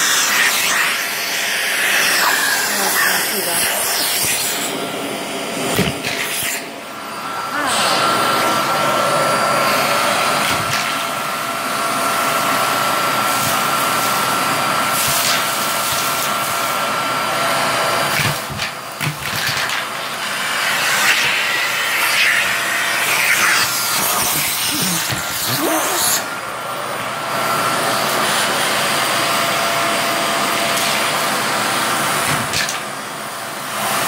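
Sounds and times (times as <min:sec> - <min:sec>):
vacuum cleaner whining on carpet: 0:00.0 - 0:34.0.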